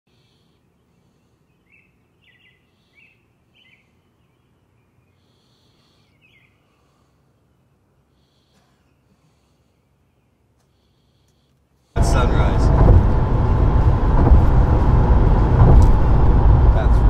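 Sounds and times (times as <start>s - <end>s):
faint bird chirps: 0.1s - 11.5s.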